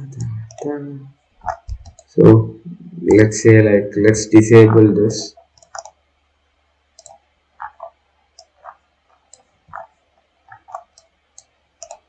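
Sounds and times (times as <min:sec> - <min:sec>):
computer mouse and keyboard clicks: 0:00.2 - 0:00.7, 0:01.4 - 0:02.1, 0:05.5 - 0:06.0, 0:07.0 - 0:09.9, 0:10.5 - 0:12.0.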